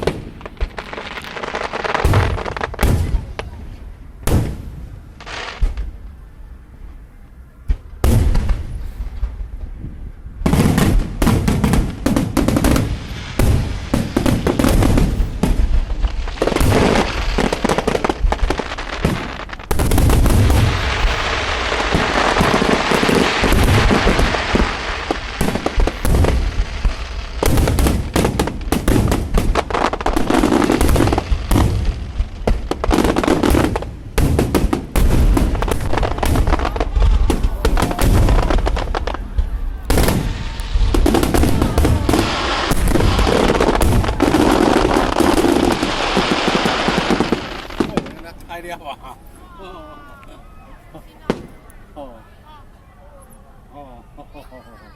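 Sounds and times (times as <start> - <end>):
fireworks bangs and bursts: 0.0 - 6.1, 7.6 - 9.8, 10.4 - 48.7, 51.2 - 51.7
fireworks crackling: 0.0 - 6.7, 7.6 - 52.6.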